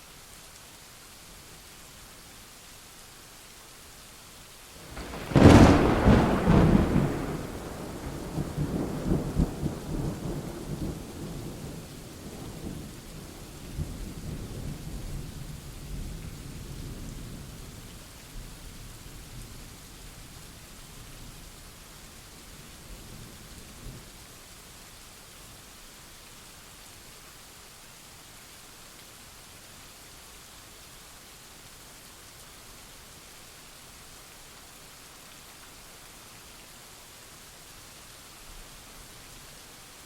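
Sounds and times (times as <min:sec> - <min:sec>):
steady rain: 0:00.0 - 0:40.0
thunderclap with rolling rumbles: 0:04.8 - 0:12.9.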